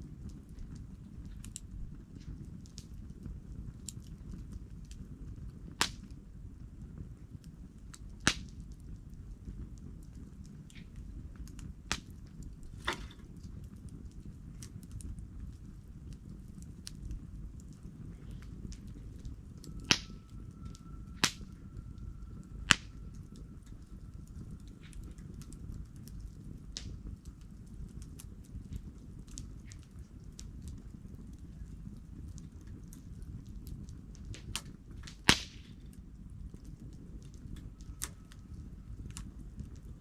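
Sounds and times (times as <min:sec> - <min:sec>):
campfire flame rushing: 0:00.0 - 0:40.0
fire crackling and popping: 0:00.0 - 0:40.0
faint thin whistle: 0:18.1 - 0:26.0.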